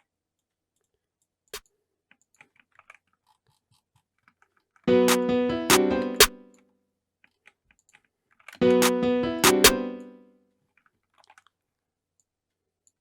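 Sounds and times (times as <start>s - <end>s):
trap beat with chords: 4.9s - 6.4s, 8.6s - 10.2s.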